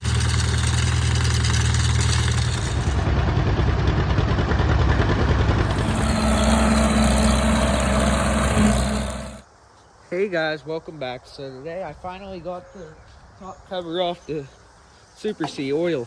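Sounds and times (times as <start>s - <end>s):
tractor engine running: 0.0s - 9.4s.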